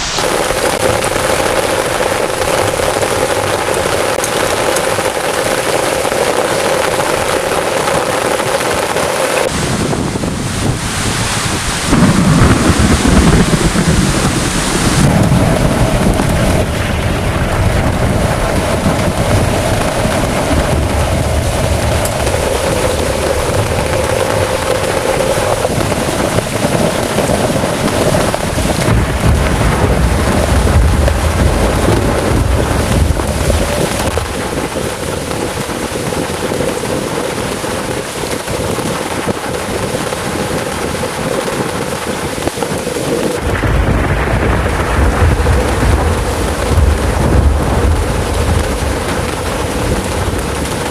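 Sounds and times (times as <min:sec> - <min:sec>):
heavy rain pouring: 0:00.0 - 0:50.9
low rumbling surges: 0:00.0 - 0:50.9
strong wind: 0:00.0 - 0:50.9.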